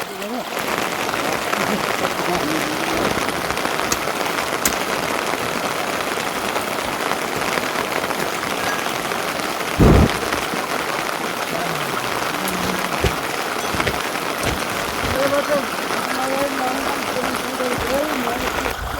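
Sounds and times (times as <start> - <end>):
steady rain: 0.0 - 18.9
short low thump: 9.8 - 10.3.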